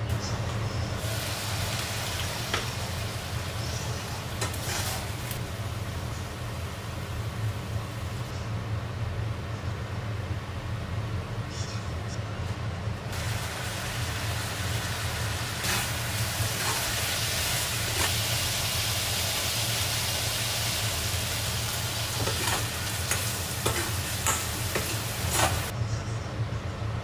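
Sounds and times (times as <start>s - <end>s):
food sizzling in hot oil: 0.1s - 8.3s, 13.1s - 25.7s.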